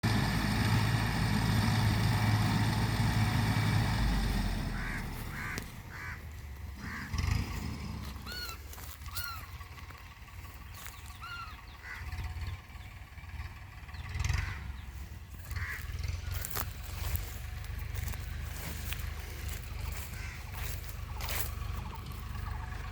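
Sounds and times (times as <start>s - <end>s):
tractor engine running: 0.0s - 22.9s
bird calling: 4.6s - 22.9s.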